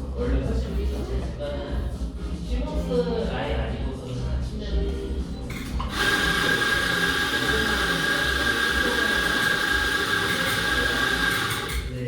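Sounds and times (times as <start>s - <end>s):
coffee machine rushing noise: 5.5s - 12.0s.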